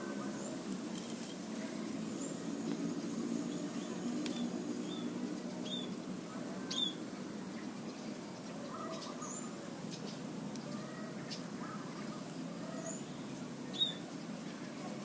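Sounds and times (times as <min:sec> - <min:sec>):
birds chirping and whistling: 0:02.1 - 0:06.0, 0:06.7 - 0:07.0, 0:07.6 - 0:14.3.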